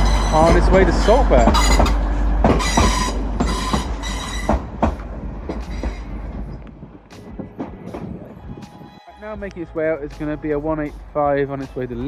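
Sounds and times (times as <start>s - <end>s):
metallic wheel squeal: 0.0s - 6.7s
train wheels knocking on rail joints: 0.0s - 8.3s.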